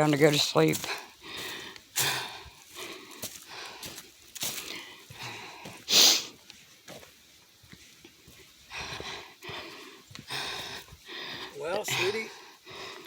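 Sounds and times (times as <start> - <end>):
person breathing hard: 0.8 - 6.4, 8.6 - 13.0.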